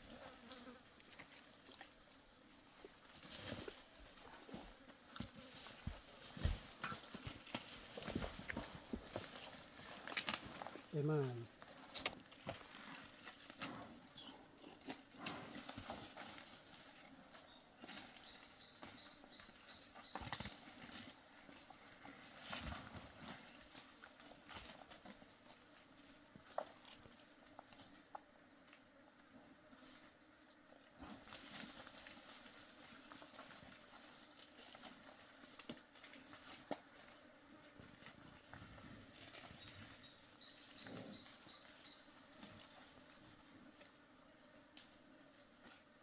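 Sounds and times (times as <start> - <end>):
hooves knocking and scuffing: 2.8 - 14.0, 14.7 - 27.9, 37.7 - 43.3.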